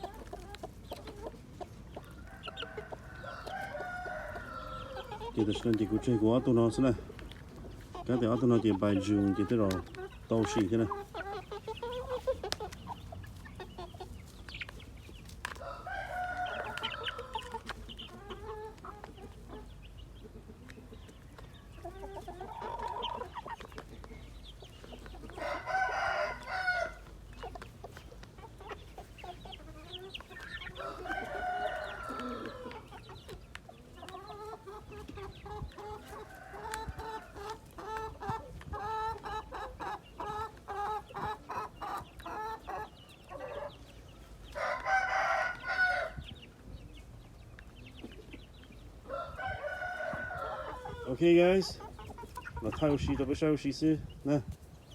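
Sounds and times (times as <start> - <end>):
chickens clucking: 0.0 - 54.9
roosters crowing: 2.0 - 7.1, 15.3 - 19.8, 25.2 - 46.7, 48.8 - 53.9.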